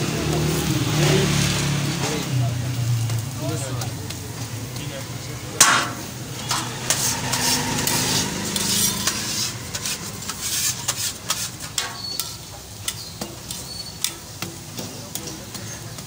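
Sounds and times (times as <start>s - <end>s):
flatbread sizzling on a griddle: 0.0s - 16.0s
metal spatula scraping griddle: 5.2s - 16.0s.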